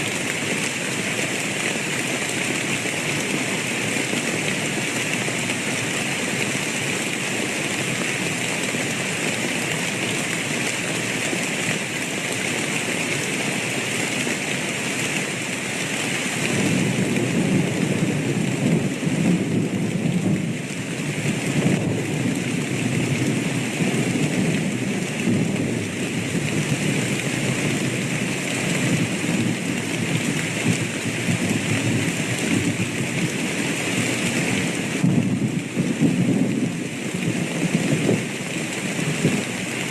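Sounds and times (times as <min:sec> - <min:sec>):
heavy rain: 0:00.0 - 0:39.9
thunder rumbling: 0:16.4 - 0:33.4, 0:34.4 - 0:38.3.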